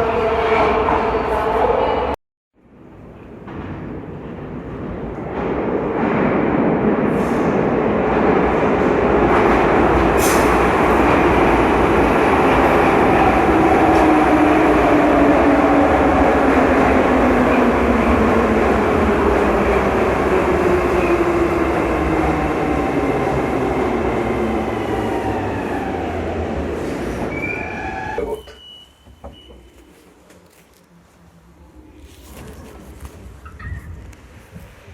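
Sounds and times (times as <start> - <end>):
train wheels rumbling on rail: 2.8 - 28.2.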